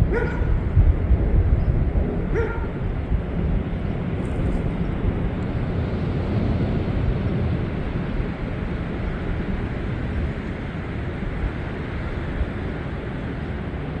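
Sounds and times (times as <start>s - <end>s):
low outdoor rumble: 0.0s - 14.0s
dog barking: 0.1s - 0.6s, 2.3s - 2.8s.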